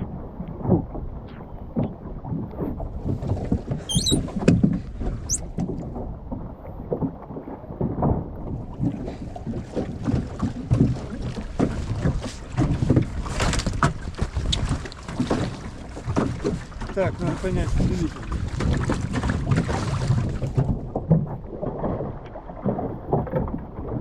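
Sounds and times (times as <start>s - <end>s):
waves slapping against hull: 0.0s - 24.0s.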